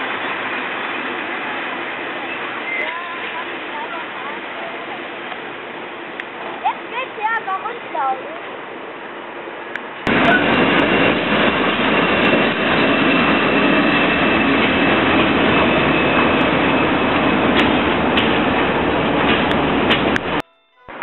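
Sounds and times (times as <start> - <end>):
electric locomotive running past: 0.0 - 20.4
train wheels on rails: 0.0 - 21.0.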